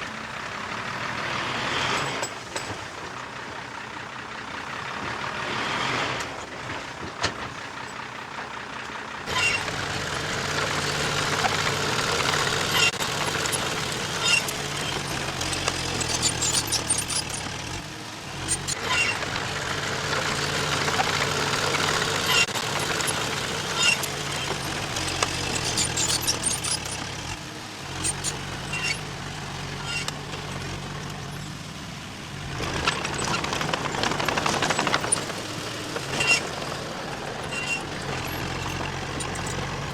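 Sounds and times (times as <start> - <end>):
heavy machinery diesel engine: 0.0 - 39.9.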